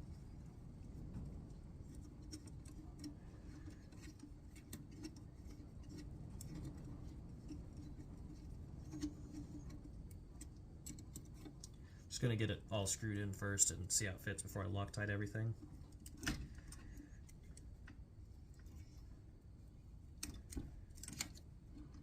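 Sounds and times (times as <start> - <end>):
small metal clicks: 20.2 - 22.0.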